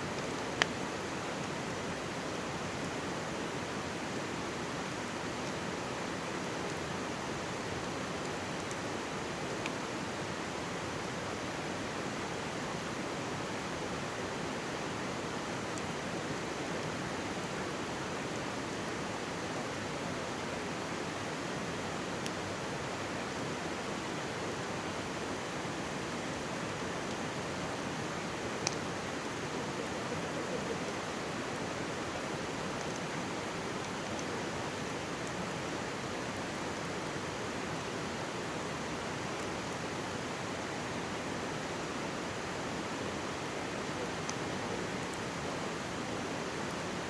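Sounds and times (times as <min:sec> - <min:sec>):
mountain stream rushing: 0:00.0 - 0:47.0
campfire popping: 0:25.8 - 0:35.4.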